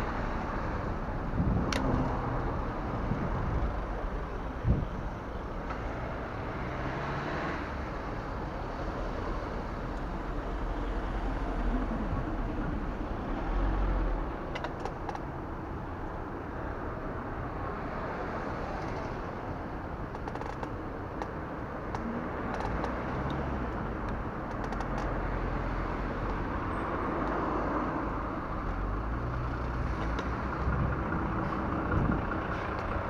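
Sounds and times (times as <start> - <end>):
rushing wind and road noise: 0.0 - 33.0
deep rumble: 30.5 - 33.0.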